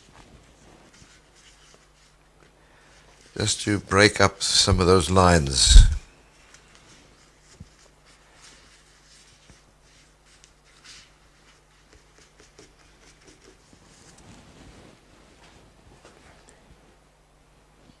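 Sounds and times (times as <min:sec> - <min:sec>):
soft brush swishes: 0:06.8 - 0:16.2.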